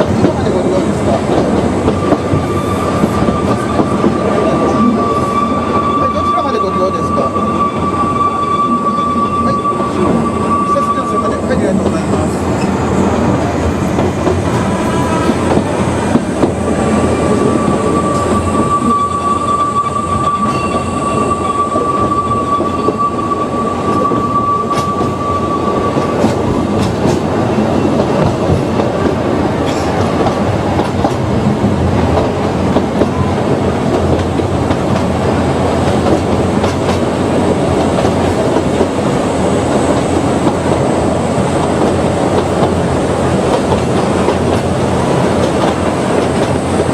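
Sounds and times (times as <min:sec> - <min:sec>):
clickety-clack of rail joints: 0:00.0 - 0:05.0, 0:11.2 - 0:16.7, 0:23.8 - 0:46.9
train wheels rumbling on track: 0:00.0 - 0:46.9
high-pitched wheel squeal: 0:02.0 - 0:11.6, 0:17.1 - 0:26.4.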